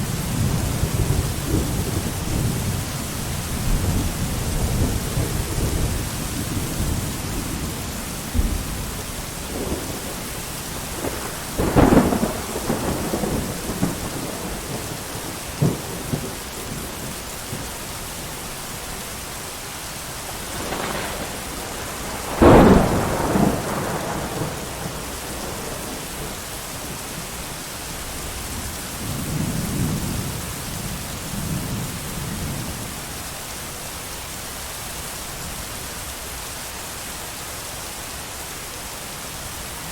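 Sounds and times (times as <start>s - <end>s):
rolling thunder rumbles: 0.0s - 18.0s, 20.3s - 33.0s
heavy rain: 0.0s - 39.9s
thunder claps: 3.5s - 17.6s, 20.3s - 27.3s.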